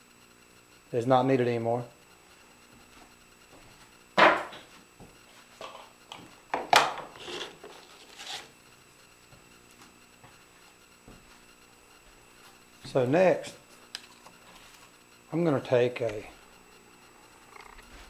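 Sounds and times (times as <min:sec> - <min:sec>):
wood scraping and knocking on wood: 0:06.6 - 0:08.5.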